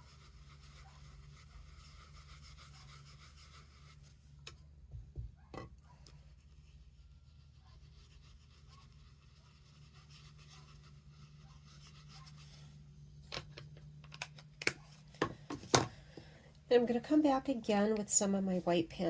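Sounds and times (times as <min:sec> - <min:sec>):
brush rubbing on cardstock: 0:00.0 - 0:04.4, 0:06.2 - 0:13.1
low steady hum: 0:00.0 - 0:19.0.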